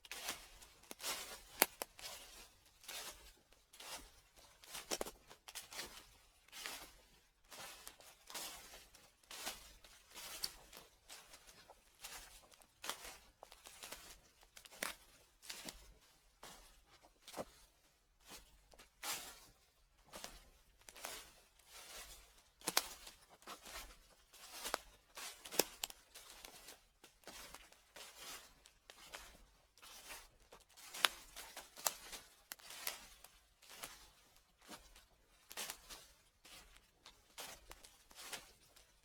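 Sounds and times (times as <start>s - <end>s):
footsteps crunching dry leaves: 30.7s - 36.6s.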